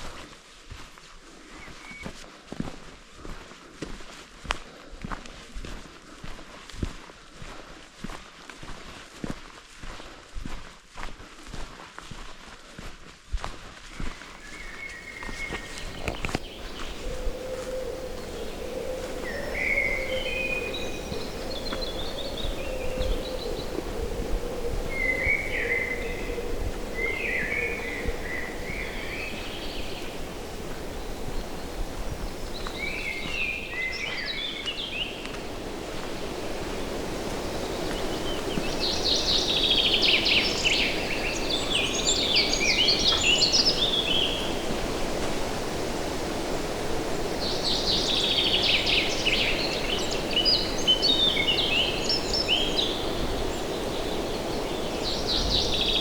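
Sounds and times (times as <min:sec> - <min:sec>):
songbird singing: 0:14.0 - 0:45.0, 0:47.1 - 0:56.0
background hiss: 0:14.0 - 0:56.0.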